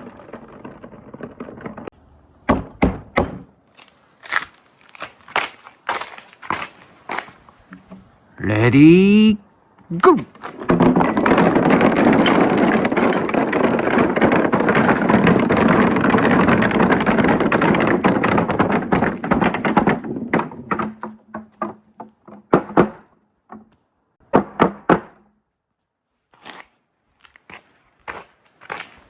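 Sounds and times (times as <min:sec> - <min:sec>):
marbles clattering down a track: 0:10.4 - 0:20.9.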